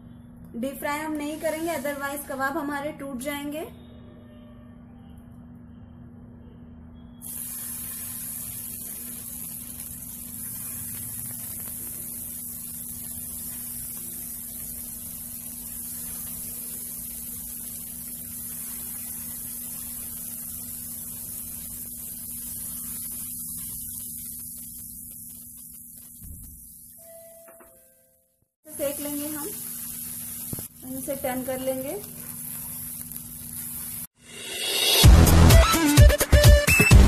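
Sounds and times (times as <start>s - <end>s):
patties sizzling in hot oil: 0.7s - 2.7s, 7.2s - 27.1s, 28.6s - 35.5s.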